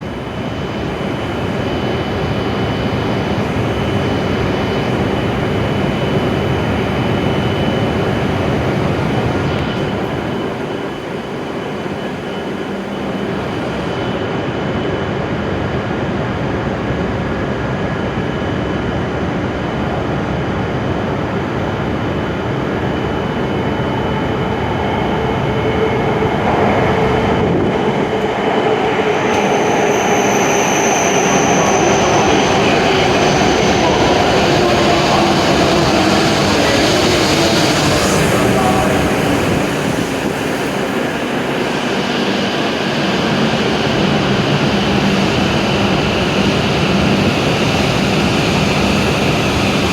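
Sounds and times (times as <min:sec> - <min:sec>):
train rolling rumble: 0:19.0 - 0:49.9
faint high whine: 0:22.5 - 0:48.1.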